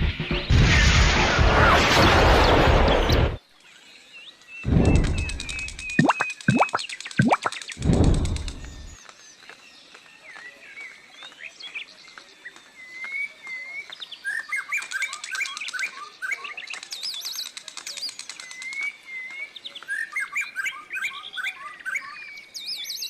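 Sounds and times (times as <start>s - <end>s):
songbirds singing: 3.4s - 23.0s.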